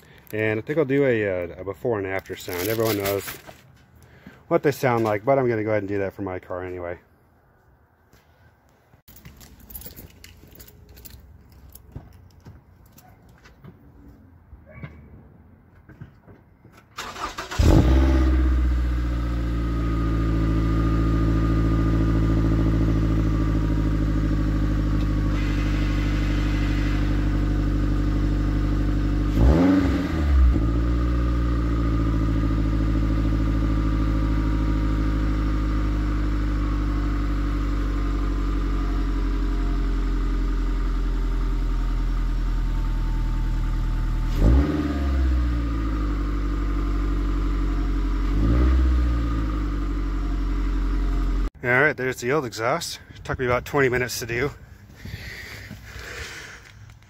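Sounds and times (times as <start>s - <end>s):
car engine starting and idling: 16.7s - 51.6s
engine revving: 17.0s - 41.0s, 42.8s - 51.5s.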